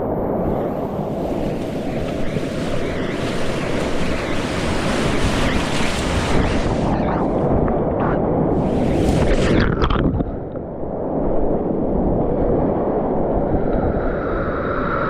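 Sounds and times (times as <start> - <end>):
wind buffeting microphone: 0.0 - 15.0
whitewater rushing: 0.5 - 7.2.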